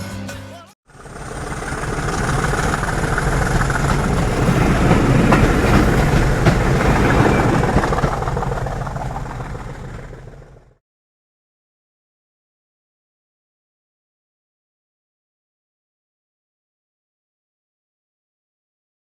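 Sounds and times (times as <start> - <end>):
train passing with rail clatter: 0.9 - 10.8.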